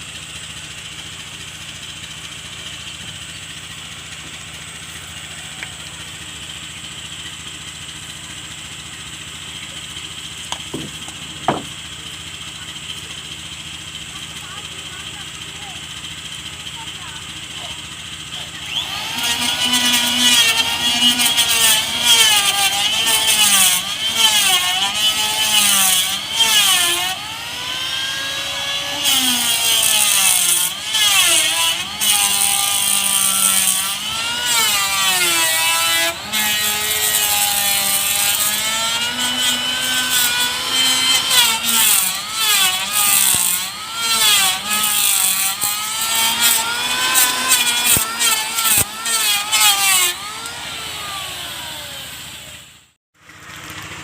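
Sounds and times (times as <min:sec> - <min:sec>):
power tool cutting wood: 0:00.0 - 0:54.0.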